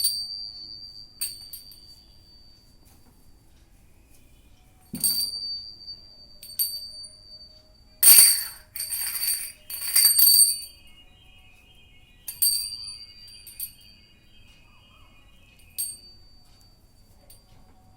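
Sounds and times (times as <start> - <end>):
small metal bell jingling: 4.9 - 10.8, 12.3 - 13.9, 15.6 - 16.4.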